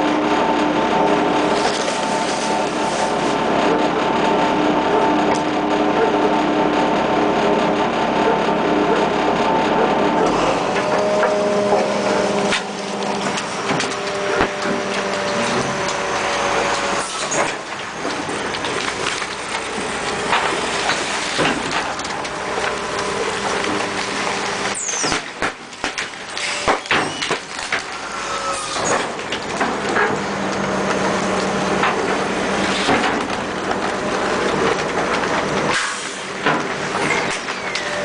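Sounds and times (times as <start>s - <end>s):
garbage truck running: 0.0s - 38.0s
sharp knocks and clanks: 34.5s - 37.9s.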